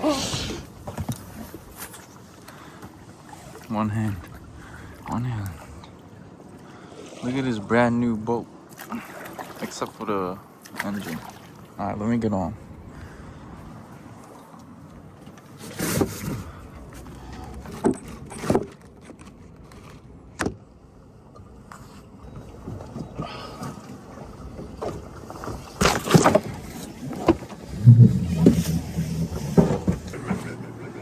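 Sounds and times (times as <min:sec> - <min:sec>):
knocks and thumps on boat deck: 0:00.3 - 0:02.0, 0:22.4 - 0:31.0
short low hum: 0:27.6 - 0:31.0.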